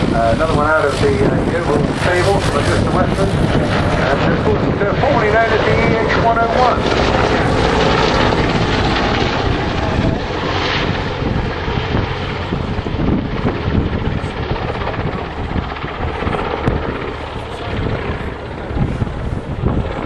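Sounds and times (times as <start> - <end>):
helicopter rotor and engine: 0.0 - 20.0.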